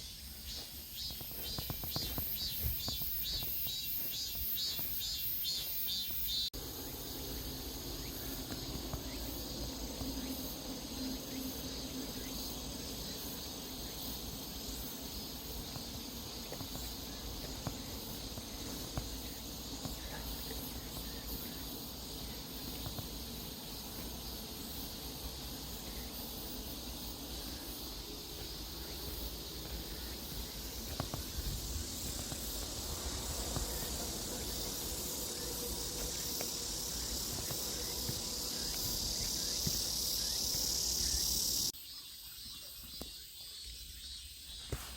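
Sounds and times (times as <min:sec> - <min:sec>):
insects chirring: 0:00.0 - 0:44.9
low outdoor rumble: 0:06.6 - 0:41.7.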